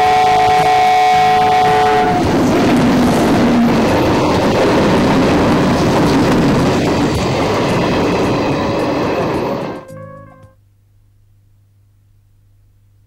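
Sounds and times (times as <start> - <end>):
train rumbling on track: 0.0 - 10.3.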